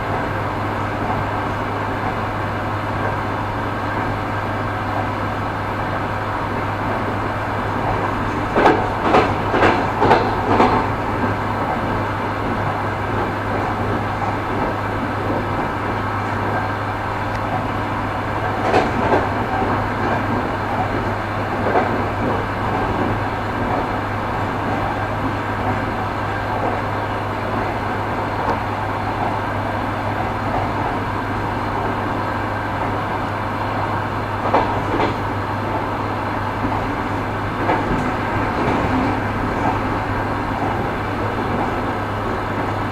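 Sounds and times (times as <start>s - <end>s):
railway car rumbling on track: 0.0s - 42.9s
wheels knocking on rail joints: 6.9s - 32.1s, 34.4s - 42.9s.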